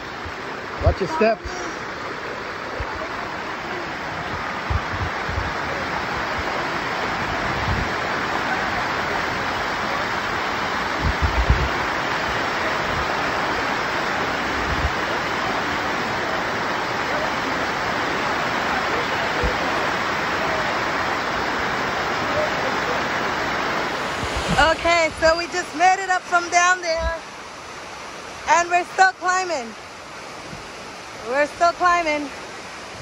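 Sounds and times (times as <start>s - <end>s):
water cascading over rocks: 0.0s - 33.0s.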